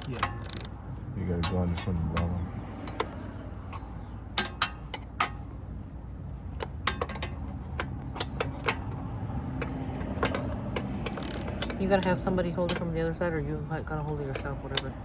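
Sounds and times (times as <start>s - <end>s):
socket wrench clicking: 0.0s - 0.8s, 9.6s - 12.9s.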